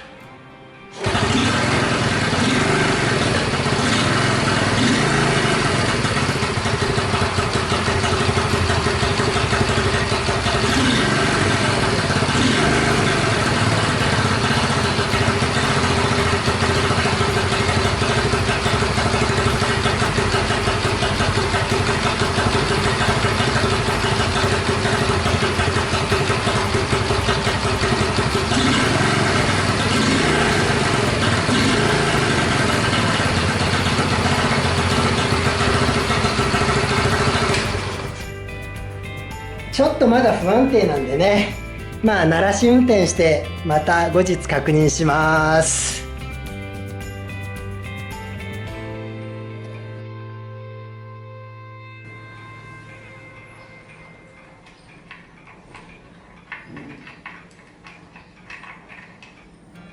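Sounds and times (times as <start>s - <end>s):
motorcycle engine idling: 1.0s - 48.8s.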